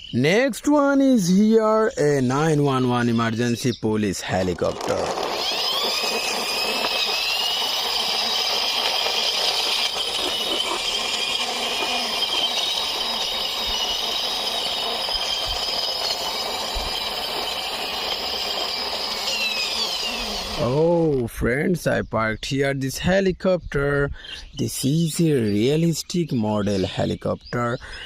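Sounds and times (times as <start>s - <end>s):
toy helicopter whirring: 4.0s - 21.1s.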